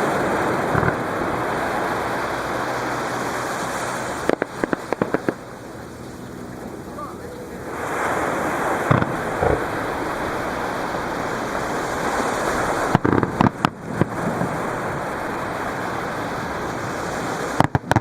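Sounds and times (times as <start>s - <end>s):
firework bangs: 0.0s - 5.6s, 8.5s - 16.4s, 17.3s - 18.0s
surf washing onto beach: 0.0s - 18.0s.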